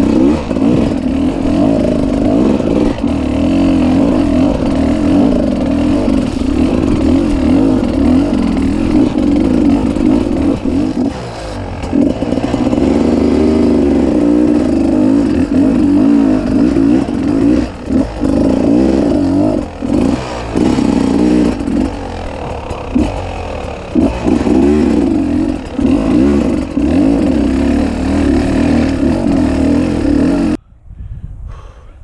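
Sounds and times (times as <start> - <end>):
motorcycle engine revving: 0.0 - 30.6.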